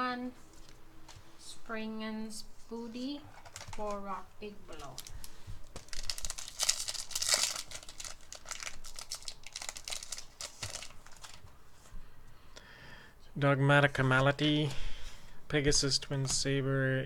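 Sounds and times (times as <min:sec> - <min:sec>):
foil wrapper tearing and crinkling: 0:03.3 - 0:04.1, 0:04.7 - 0:11.5.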